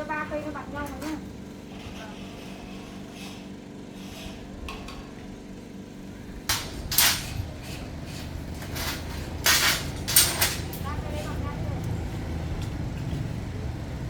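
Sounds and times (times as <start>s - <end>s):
steady low hum: 0.0s - 14.0s
metal pieces clanking: 6.5s - 11.0s.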